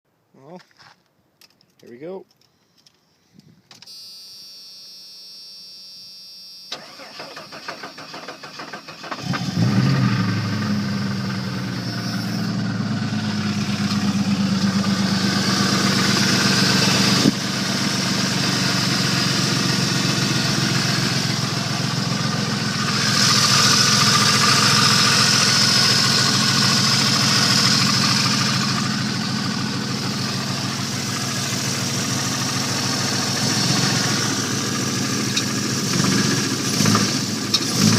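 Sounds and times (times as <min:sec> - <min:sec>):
engine running with rod knock: 0:35.1 - 0:37.9.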